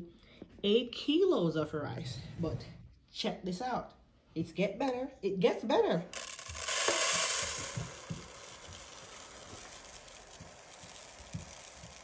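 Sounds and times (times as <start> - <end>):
rice grains pouring: 6.2 - 12.0.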